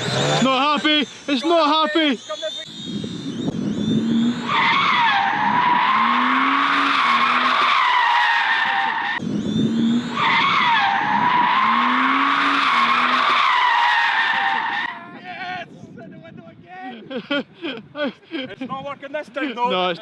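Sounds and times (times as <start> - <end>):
car engine revving: 0.0 - 15.0
tyres squealing: 0.0 - 15.0.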